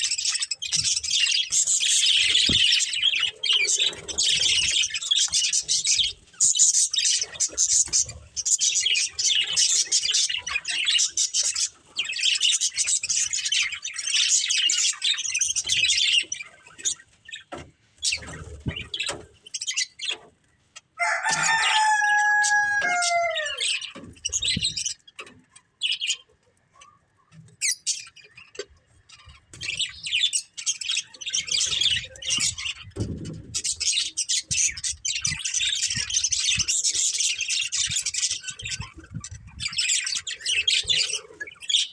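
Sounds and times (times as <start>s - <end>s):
budgerigars chirping: 0.0s - 20.3s
lower falling bird call: 21.0s - 23.8s.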